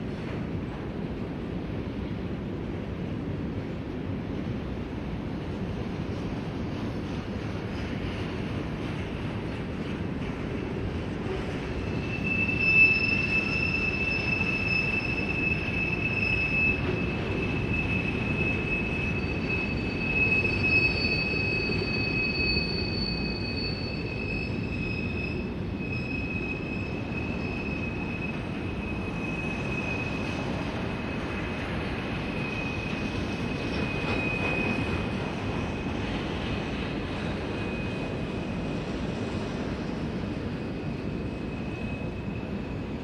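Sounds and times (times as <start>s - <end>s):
steel wheels rumbling on rail: 0.0s - 43.0s
high thin wheel squeal: 11.7s - 35.2s, 37.5s - 38.6s.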